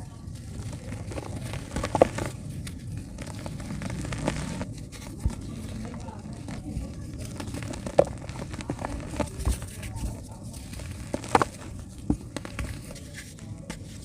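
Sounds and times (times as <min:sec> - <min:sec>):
dry dirt crumbling: 0:00.0 - 0:13.1.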